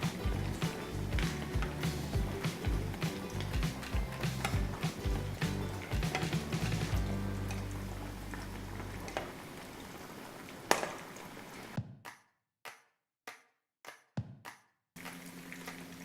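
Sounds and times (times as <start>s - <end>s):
chicken deep-frying in oil: 0.0s - 11.8s, 15.0s - 16.0s.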